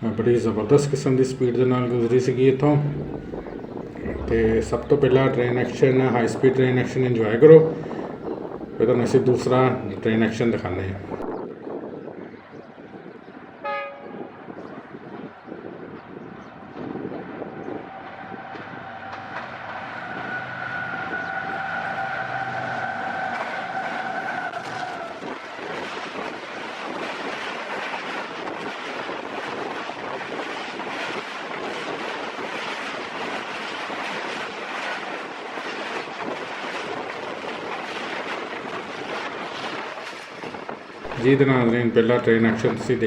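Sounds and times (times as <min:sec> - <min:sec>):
train coaches rattling on rails: 0:00.0 - 0:11.3, 0:16.7 - 0:43.0
locomotive horn: 0:13.6 - 0:14.3, 0:18.1 - 0:25.4.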